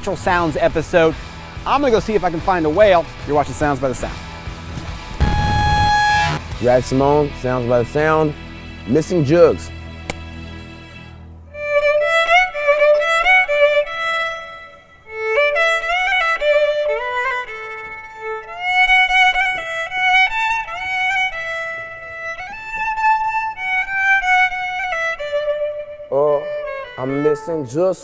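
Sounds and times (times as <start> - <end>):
solo violin slow melody: 11.5 - 27.9.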